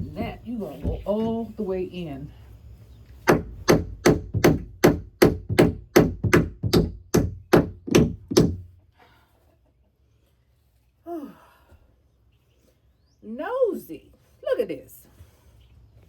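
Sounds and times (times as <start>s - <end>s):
hammer driving nail into wood: 3.2s - 8.7s.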